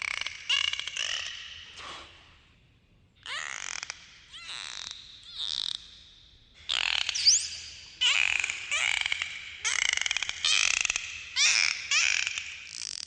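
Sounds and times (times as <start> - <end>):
dolphin clicks: 3.3 - 5.9.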